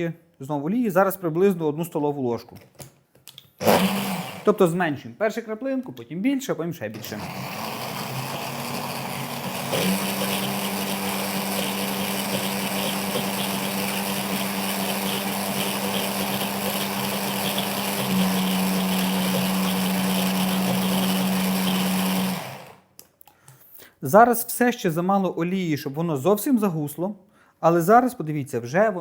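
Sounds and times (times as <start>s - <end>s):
blender motor running: 3.6s - 4.6s, 7.0s - 22.9s.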